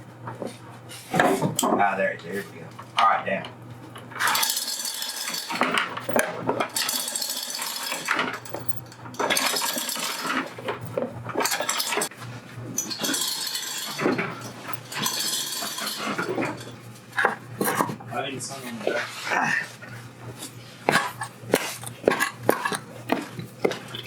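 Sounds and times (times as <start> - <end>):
metal chain clinking and rattling: 4.2 - 12.1, 12.8 - 16.8.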